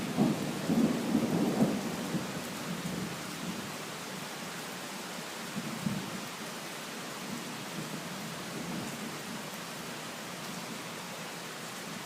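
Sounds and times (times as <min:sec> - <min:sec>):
thunder rumbling: 0:00.0 - 0:02.3
heavy rain falling: 0:00.0 - 0:12.0.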